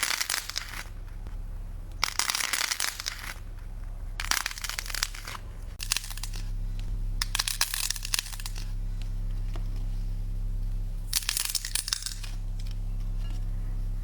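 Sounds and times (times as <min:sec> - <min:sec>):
slime crackling in hands: 0:04.2 - 0:08.7.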